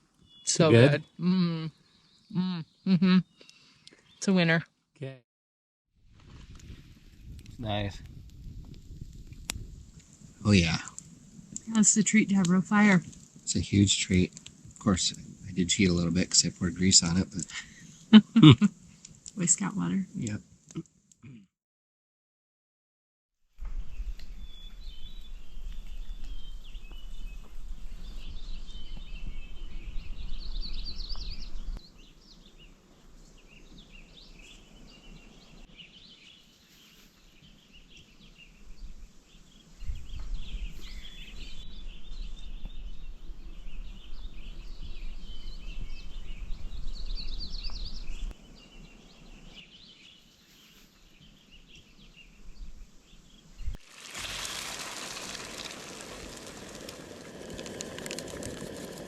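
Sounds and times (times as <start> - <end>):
songbirds chirping and trilling: 0.1 - 4.6, 23.7 - 53.8.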